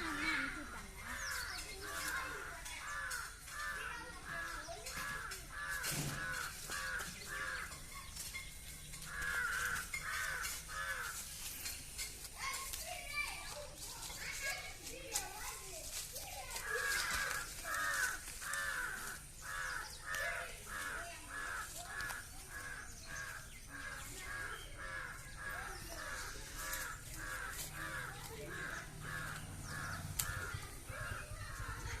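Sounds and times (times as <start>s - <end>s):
bird calling: 16.3s - 32.0s.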